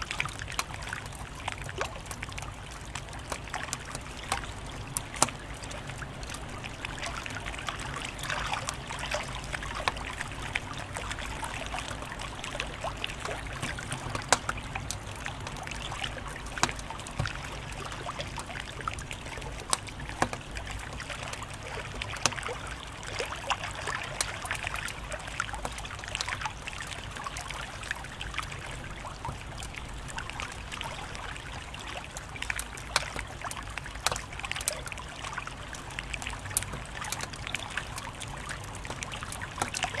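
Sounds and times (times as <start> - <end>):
wood fire crackling: 0.1 - 23.0, 35.4 - 40.0.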